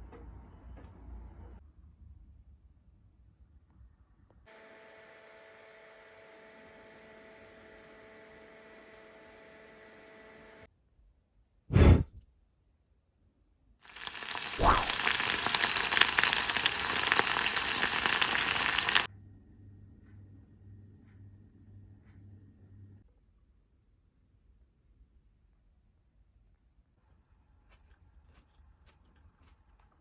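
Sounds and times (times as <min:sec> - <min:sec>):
food sizzling in a frying pan: 0:13.8 - 0:19.1.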